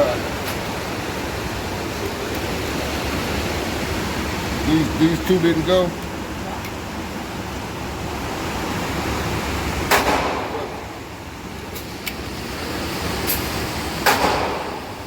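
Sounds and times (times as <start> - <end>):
gunshots with echo: 9.9 - 10.8, 14.0 - 14.8.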